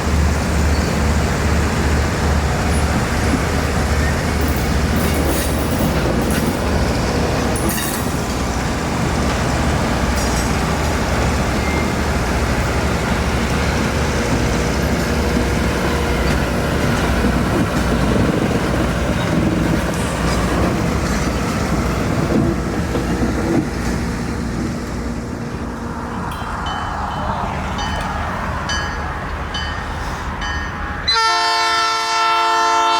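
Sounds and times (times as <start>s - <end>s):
train rumbling on rails: 0.0s - 32.9s.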